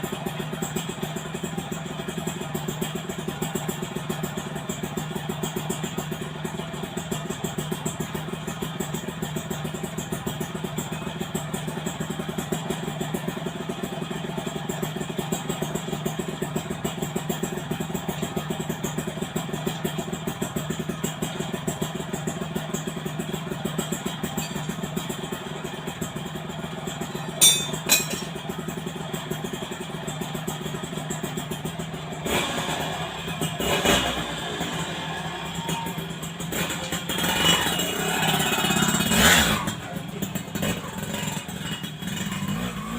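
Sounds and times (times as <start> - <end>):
two-stroke motorcycle idling: 0.0 - 42.9.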